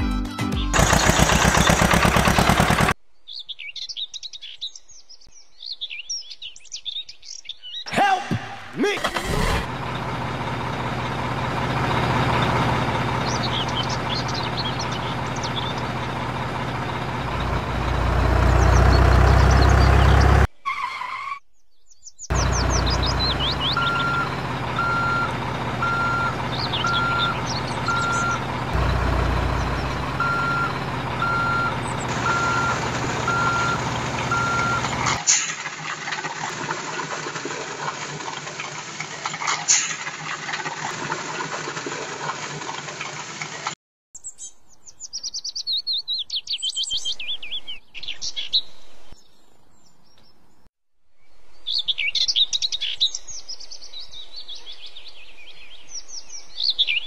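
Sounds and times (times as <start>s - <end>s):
truck engine running: 0.6s - 3.0s, 8.0s - 20.5s, 22.3s - 43.7s
birds chirping faintly: 3.0s - 8.1s, 11.8s - 20.5s, 21.5s - 35.0s
reversing alarm beeping: 23.4s - 28.5s, 30.1s - 35.0s.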